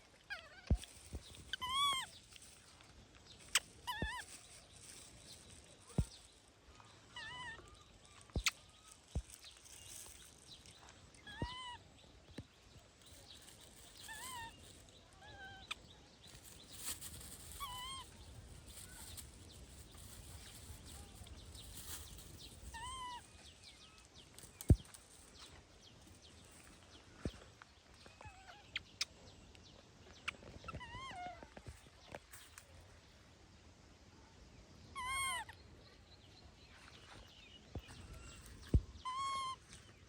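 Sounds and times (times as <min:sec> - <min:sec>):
baby monkey calling: 0:01.4 - 0:02.1, 0:03.5 - 0:04.4, 0:11.2 - 0:11.8, 0:13.7 - 0:15.8, 0:16.4 - 0:19.3, 0:19.9 - 0:23.3, 0:35.0 - 0:35.6, 0:39.0 - 0:39.7.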